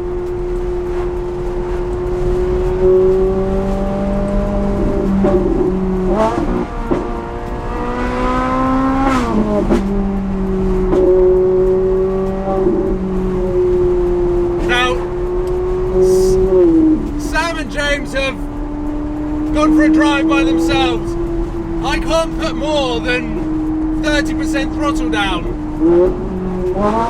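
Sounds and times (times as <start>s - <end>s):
car engine revving: 25.5s - 27.0s.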